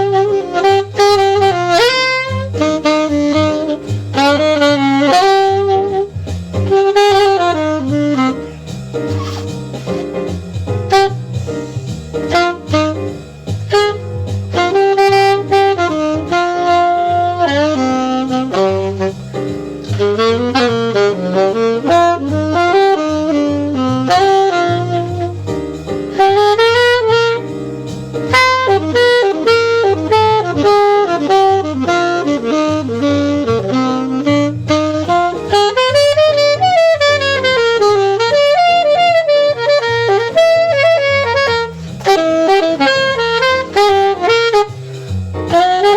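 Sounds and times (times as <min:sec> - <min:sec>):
jazz saxophone melody: 0:00.0 - 0:45.9
light drums: 0:00.0 - 0:45.9
walking bass line: 0:05.8 - 0:12.0.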